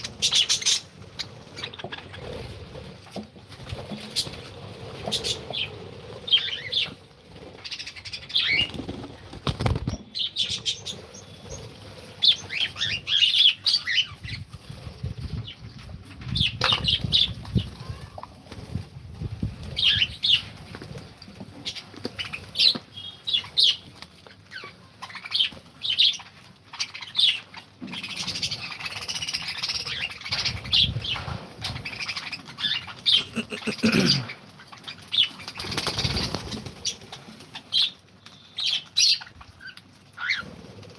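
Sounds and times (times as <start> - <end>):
birds chirping: 0.0 - 3.2, 3.8 - 14.5, 19.7 - 40.9
wing flapping: 0.0 - 22.9, 34.4 - 40.9.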